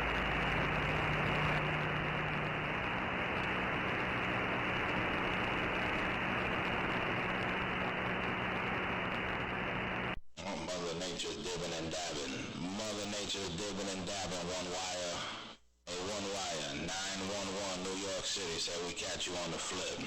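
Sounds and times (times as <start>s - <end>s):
faint low hum: 0.0s - 14.8s
radio static hiss: 0.0s - 20.0s.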